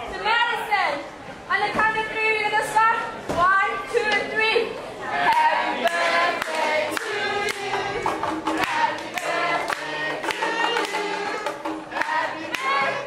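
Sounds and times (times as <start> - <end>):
children singing: 5.1 - 13.0
clapping: 5.3 - 11.1, 12.0 - 12.8
hand drum strikes: 6.4 - 13.0.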